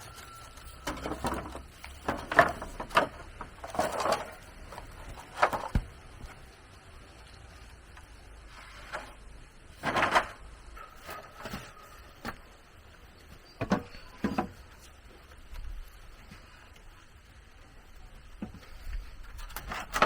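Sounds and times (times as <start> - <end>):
rustling: 0.0 - 20.0
knocks of objects handled: 0.1 - 6.3.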